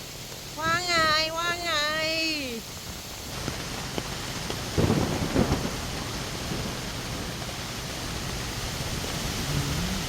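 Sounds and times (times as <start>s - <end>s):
heavy rain: 0.0s - 10.0s
low rumbling thuds: 3.4s - 8.3s.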